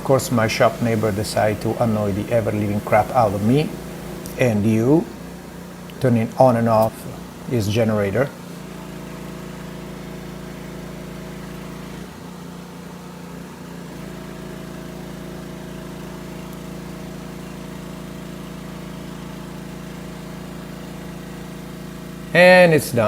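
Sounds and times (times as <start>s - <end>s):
generator engine humming: 0.0s - 23.0s.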